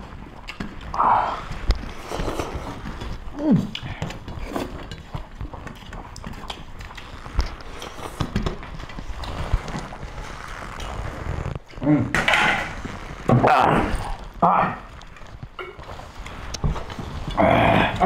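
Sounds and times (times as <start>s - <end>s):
wet chewing and lip-smacking: 0.0s - 10.8s
fingers mixing rice on steel plates: 0.0s - 11.6s.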